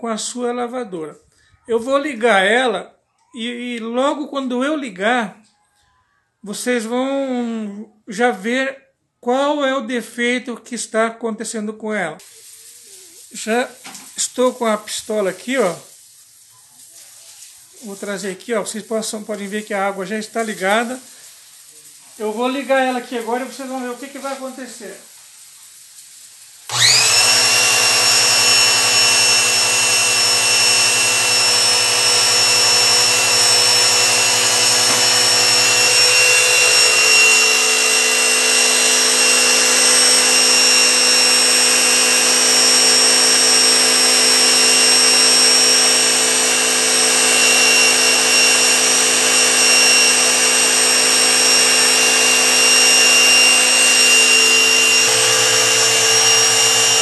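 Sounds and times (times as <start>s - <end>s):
pressure washer whining: 12.2s - 16.4s, 17.4s - 25.2s, 26.0s - 57.0s
pressure washer switch: 26.7s - 38.1s.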